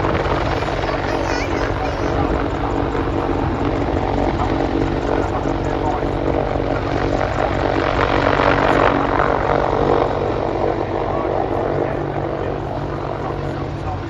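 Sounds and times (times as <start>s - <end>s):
helicopter turbine engine: 0.0s - 14.0s
rotor blades beating: 0.0s - 14.0s.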